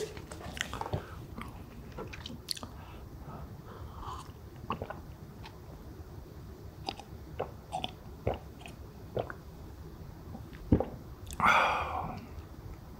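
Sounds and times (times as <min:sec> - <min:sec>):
person chewing: 0:00.0 - 0:02.9, 0:06.8 - 0:09.4.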